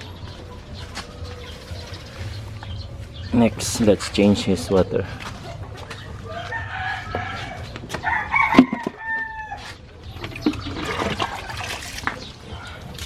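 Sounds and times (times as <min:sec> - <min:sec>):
rooster crowing: 0:06.2 - 0:09.7.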